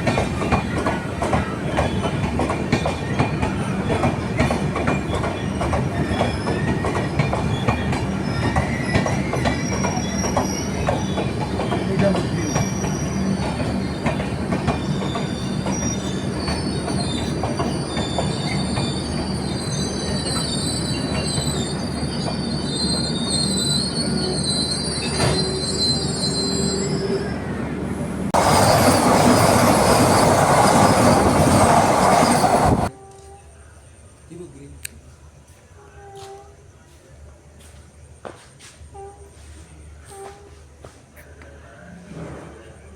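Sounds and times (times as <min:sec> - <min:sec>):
train wheels squealing: 0:00.0 - 0:32.9
train rolling along track: 0:00.0 - 0:34.6.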